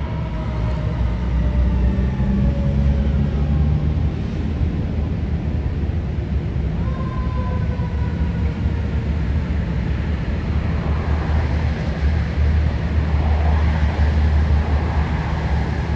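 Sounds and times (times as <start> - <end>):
faint wailing siren: 0.0 - 4.2
fire truck engine and road noise: 0.0 - 15.9.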